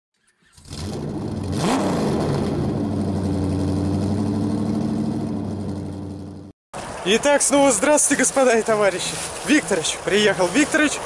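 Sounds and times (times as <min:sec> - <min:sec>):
car engine running: 0:00.6 - 0:06.5
engine revving: 0:00.6 - 0:06.5.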